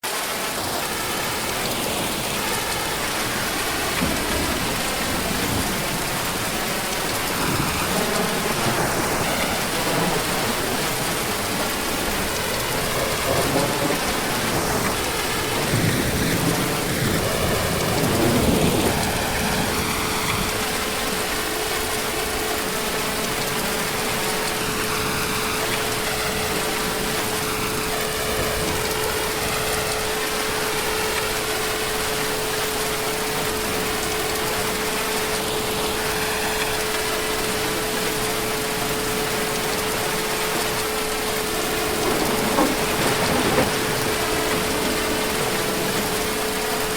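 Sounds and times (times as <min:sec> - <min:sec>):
heavy rain: 0:00.0 - 0:46.9
thunder: 0:01.7 - 0:21.3, 0:40.2 - 0:46.9.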